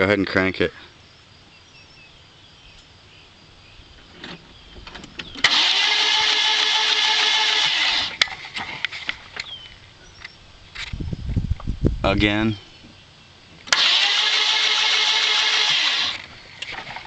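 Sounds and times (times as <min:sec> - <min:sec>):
starter motor cranking: 0:05.4 - 0:08.3, 0:13.7 - 0:17.0.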